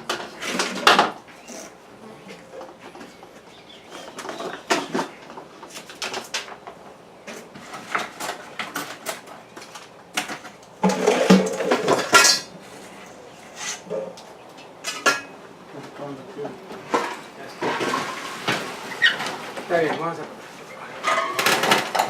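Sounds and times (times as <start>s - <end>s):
hard objects clinking and rattling: 7.4s - 12.5s.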